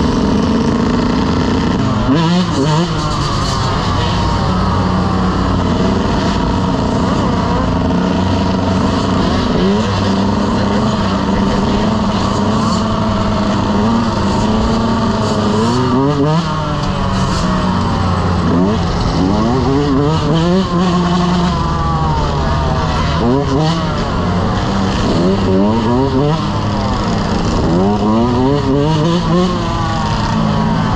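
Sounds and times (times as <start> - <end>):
dirt bike engines revving: 0.0 - 30.9.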